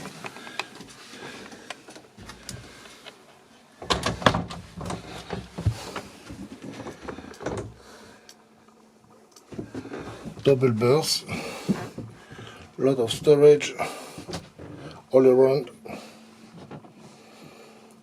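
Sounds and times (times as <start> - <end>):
knocks and bumps of handling: 3.8 - 7.8, 16.6 - 17.1.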